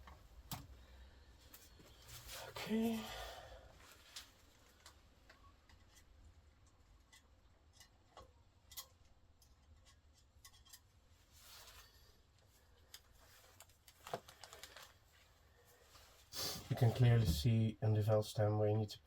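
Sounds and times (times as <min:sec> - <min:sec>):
metal tools clicking and tapping: 0:05.6 - 0:10.9.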